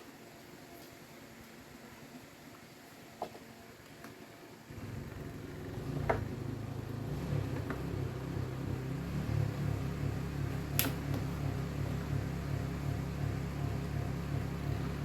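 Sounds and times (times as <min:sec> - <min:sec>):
electric fan motor humming: 0:04.6 - 0:15.0.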